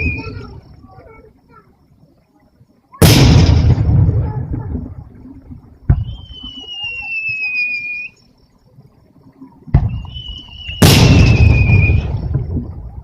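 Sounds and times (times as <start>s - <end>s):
firework whistle: 0.0s - 0.6s, 5.9s - 8.3s, 9.8s - 12.4s
firework bang: 3.0s - 4.9s, 5.8s - 6.5s, 9.7s - 12.8s.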